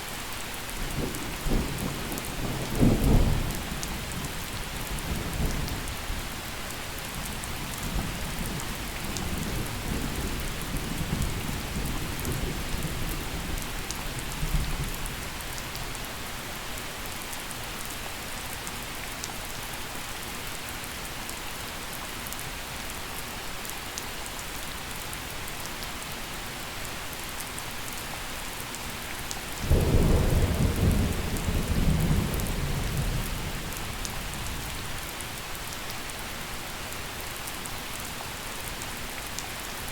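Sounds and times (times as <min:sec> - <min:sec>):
gentle rain falling: 0:00.0 - 0:39.9
thunder rumbling and cracking: 0:29.6 - 0:35.0.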